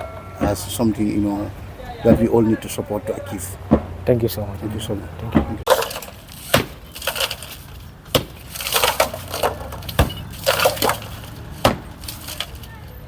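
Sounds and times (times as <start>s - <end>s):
crunching and crackling: 0.0s - 13.0s
sharp knocks: 3.6s - 4.1s, 5.2s - 12.7s
wood cracking and splintering: 5.2s - 13.0s.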